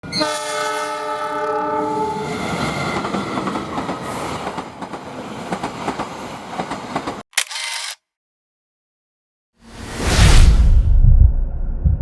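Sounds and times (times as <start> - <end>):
train air horn: 0.0 - 2.8
train passing with rumble: 1.6 - 7.2.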